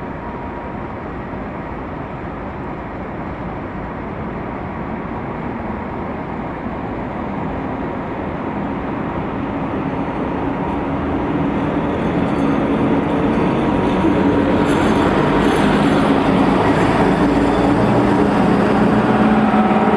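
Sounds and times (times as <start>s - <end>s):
train rumble: 0.0s - 19.9s
low engine tone: 7.9s - 19.9s.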